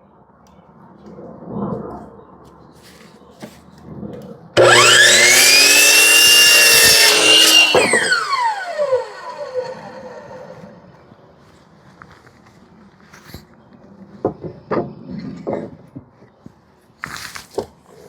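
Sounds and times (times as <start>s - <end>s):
electric saw cutting board: 4.6s - 10.8s.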